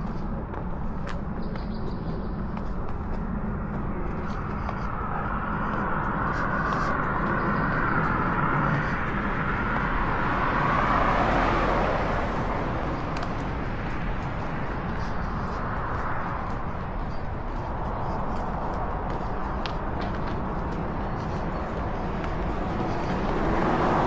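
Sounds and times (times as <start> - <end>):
car driving past: 10.1 - 12.9.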